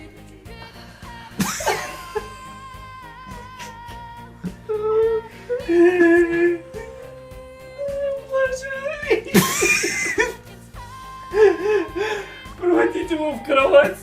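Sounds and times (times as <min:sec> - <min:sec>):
breathy vocal sound: 0:00.0 - 0:07.9, 0:10.2 - 0:12.7
background music: 0:00.0 - 0:14.0
person humming: 0:01.1 - 0:08.3, 0:10.1 - 0:12.8.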